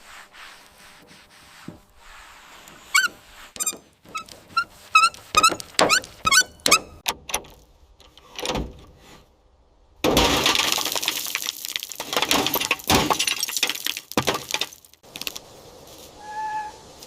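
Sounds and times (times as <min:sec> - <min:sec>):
high-pitched squeaks: 0:02.8 - 0:07.0, 0:16.2 - 0:16.9.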